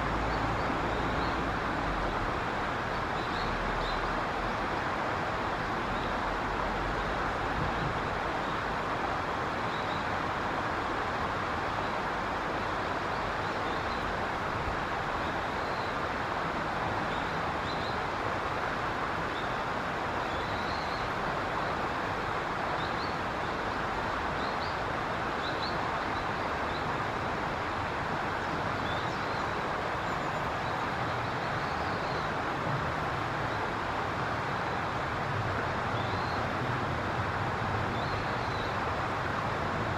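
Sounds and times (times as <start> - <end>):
steady rushing noise: 20.9 - 39.9.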